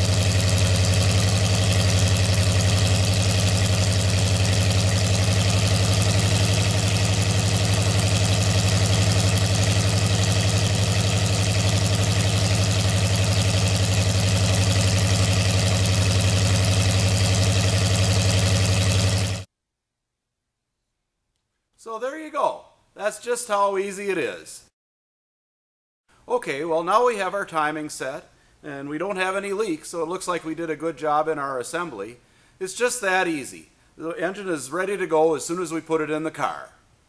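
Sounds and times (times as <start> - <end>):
engine idling through open headers: 0.0 - 19.5.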